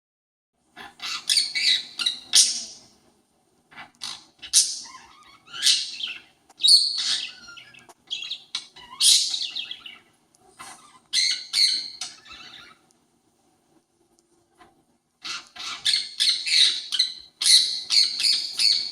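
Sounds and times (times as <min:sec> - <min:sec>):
parakeet rapid calls: 0:00.8 - 0:02.9, 0:03.7 - 0:12.8, 0:15.2 - 0:18.9.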